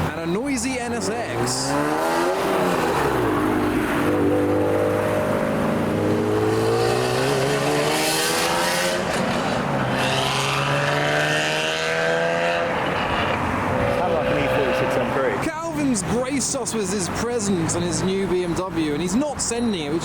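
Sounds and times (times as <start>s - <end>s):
sports car engine accelerating: 1.3s - 15.4s.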